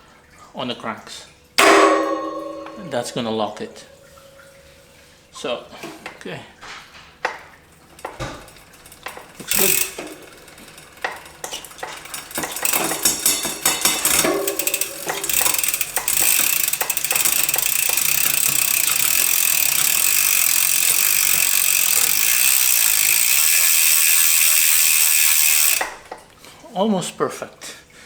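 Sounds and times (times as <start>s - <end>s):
bike chain clicking and rattling: 1.6s - 4.5s, 7.0s - 26.3s
ratcheting buzz of spinning wheel: 7.8s - 26.2s.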